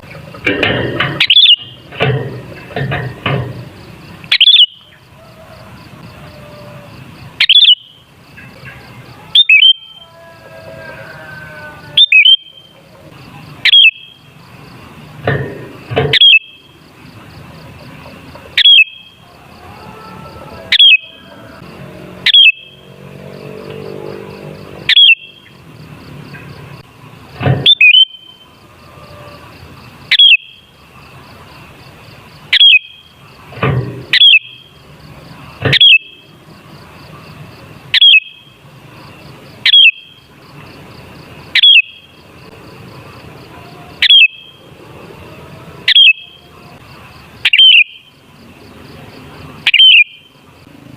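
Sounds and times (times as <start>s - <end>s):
bulbul sharp calls: 0.0s - 2.8s, 3.7s - 10.1s, 11.6s - 14.4s, 15.2s - 19.4s, 20.5s - 25.6s, 27.5s - 29.4s, 30.0s - 30.7s, 32.4s - 33.2s, 34.0s - 34.8s, 35.6s - 36.4s, 37.9s - 38.6s, 39.5s - 40.3s, 41.5s - 42.3s, 43.8s - 44.6s, 45.9s - 46.5s, 47.4s - 48.2s, 49.6s - 50.4s.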